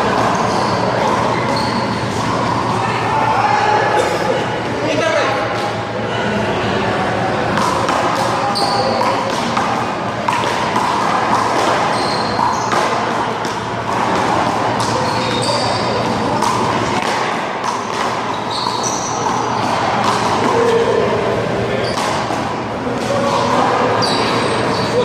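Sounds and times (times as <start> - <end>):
short high squeaks: 0.3 - 2.6, 11.8 - 12.7, 15.0 - 16.1, 18.3 - 19.4, 24.0 - 25.0.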